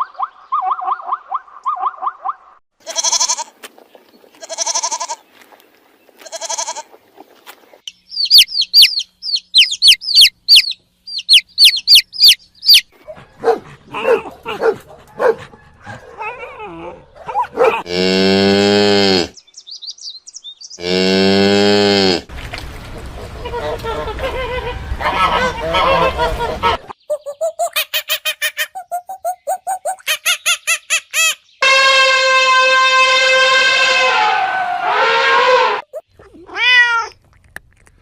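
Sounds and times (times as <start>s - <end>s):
rapid high chirps: 7.9s - 12.9s
cow mooing: 17.6s - 19.4s, 20.8s - 22.3s.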